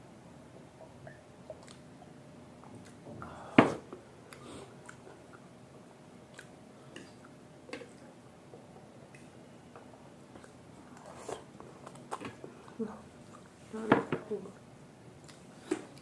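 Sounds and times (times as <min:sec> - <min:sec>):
chewing and eating: 0:01.4 - 0:03.1, 0:04.3 - 0:05.5, 0:06.3 - 0:13.7, 0:15.2 - 0:16.0.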